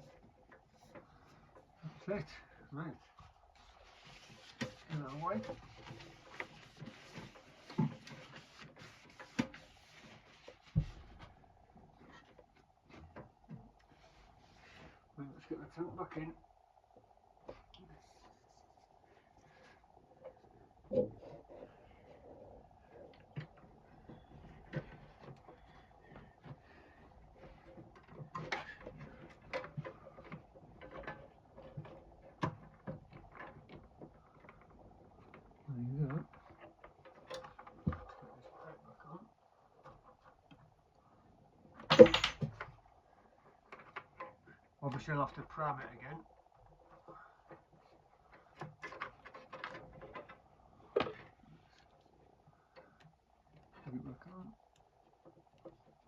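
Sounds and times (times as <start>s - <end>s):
parts knocking and clicking: 41.8s - 42.9s.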